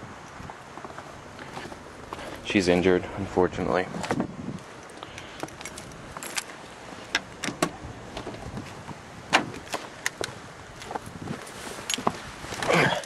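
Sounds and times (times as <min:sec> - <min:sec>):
keys jangling: 0:05.5 - 0:06.5.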